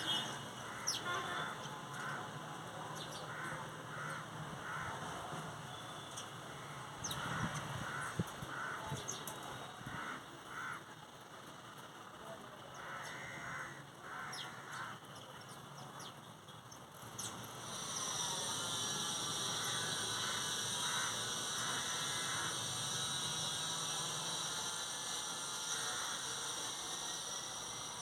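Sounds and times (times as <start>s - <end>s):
birds chirping: 0.0s - 2.3s
high-pitched buzz: 17.4s - 28.0s.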